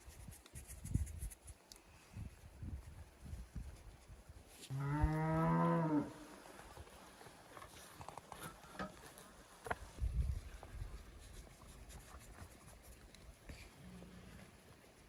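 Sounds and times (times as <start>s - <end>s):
cow mooing: 4.7s - 6.2s.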